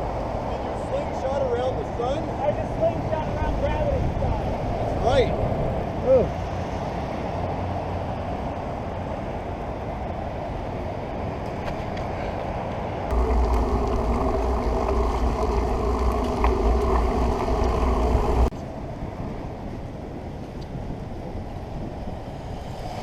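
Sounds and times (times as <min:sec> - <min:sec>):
road noise: 0:00.0 - 0:20.4, 0:21.1 - 0:23.0
heavy low rumble: 0:13.1 - 0:18.5
wind buffeting microphone: 0:13.1 - 0:23.0.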